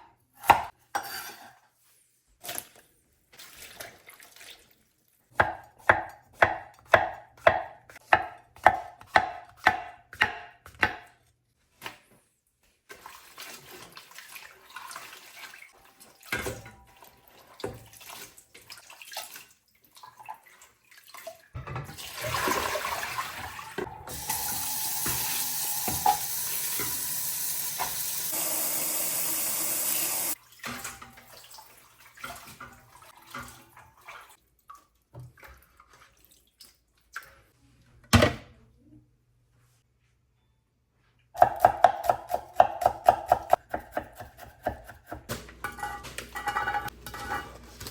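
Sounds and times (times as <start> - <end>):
knife chopping on cutting board: 5.4 - 11.1, 41.4 - 45.4
kitchen tap running into sink: 21.6 - 34.1.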